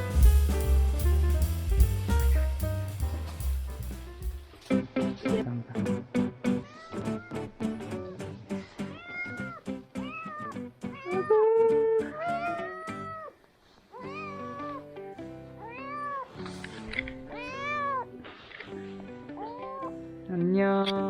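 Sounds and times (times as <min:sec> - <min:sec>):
plucked guitar background music: 0:00.0 - 0:13.3, 0:13.9 - 0:21.0
kitten meowing: 0:09.0 - 0:11.4.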